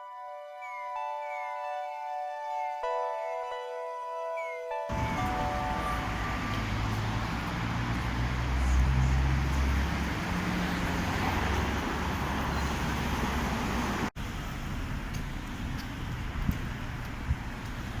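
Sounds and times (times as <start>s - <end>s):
road noise hiss: 4.9s - 18.0s
vehicle engine passing: 4.9s - 18.0s.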